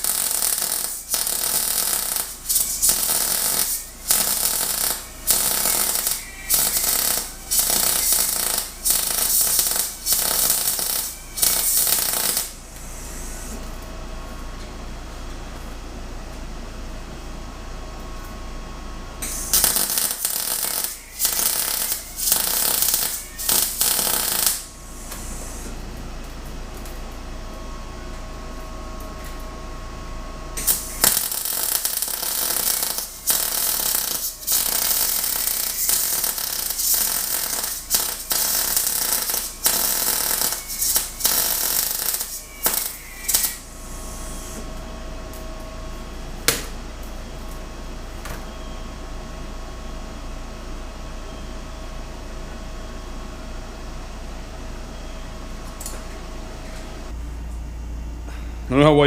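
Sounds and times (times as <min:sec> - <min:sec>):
arc welding crackling: 0:00.0 - 0:12.8, 0:19.2 - 0:25.4, 0:30.6 - 0:43.8.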